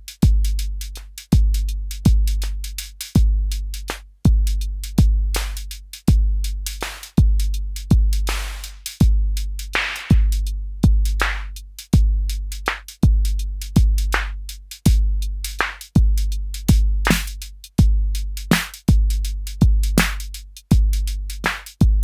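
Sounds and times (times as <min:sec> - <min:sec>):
deep kick drum: 0:00.0 - 0:22.0
hi-hat ticks: 0:00.0 - 0:22.0
noisy snare hits: 0:17.1 - 0:17.4, 0:18.5 - 0:18.9, 0:20.0 - 0:20.3, 0:21.5 - 0:21.7.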